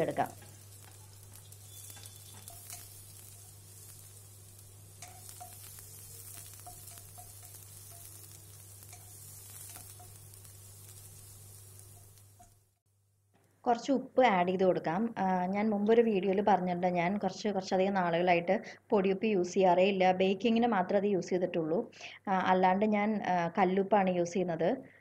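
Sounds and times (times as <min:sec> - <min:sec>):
onions sizzling in oil: 0:00.0 - 0:12.8.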